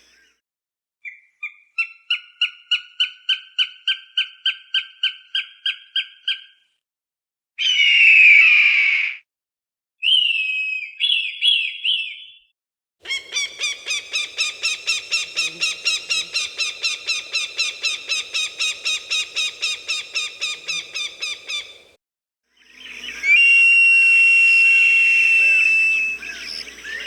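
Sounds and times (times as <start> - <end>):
falcon calls: 13.0 - 21.9.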